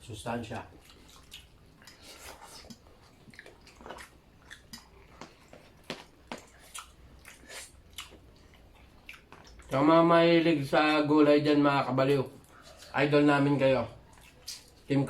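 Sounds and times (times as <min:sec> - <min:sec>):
person chewing food: 0:00.6 - 0:09.8, 0:12.4 - 0:13.0, 0:14.0 - 0:14.9.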